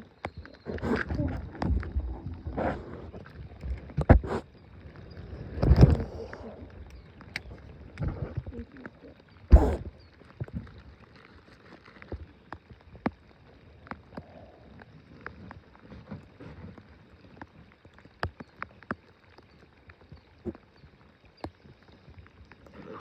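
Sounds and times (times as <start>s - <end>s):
light taps and clicks on a boat: 0.0s - 22.8s.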